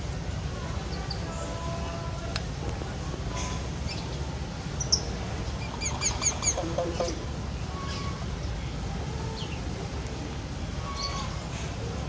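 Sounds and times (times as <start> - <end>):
bird calls: 4.8 - 8.2.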